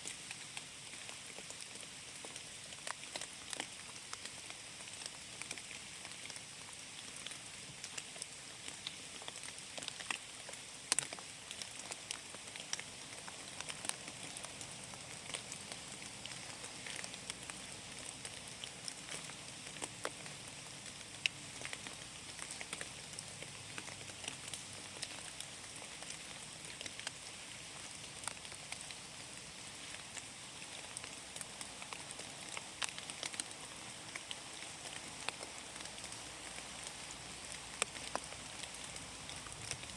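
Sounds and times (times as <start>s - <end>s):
rain falling in a forest: 0.0s - 39.9s.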